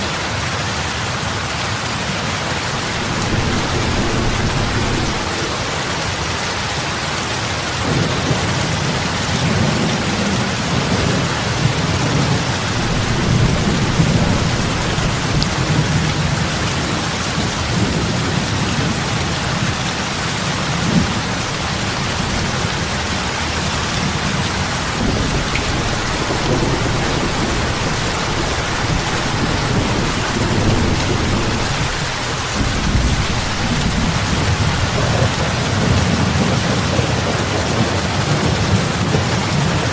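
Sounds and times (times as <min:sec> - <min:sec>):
heavy rain on water: 0:00.0 - 0:39.9
low rumble: 0:02.7 - 0:06.4.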